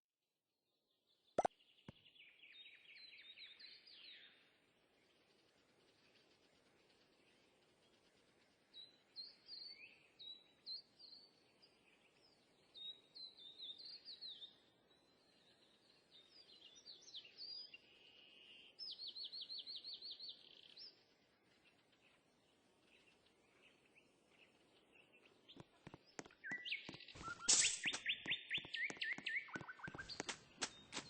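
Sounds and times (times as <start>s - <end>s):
bird chirping and trilling: 23.7s - 31.0s.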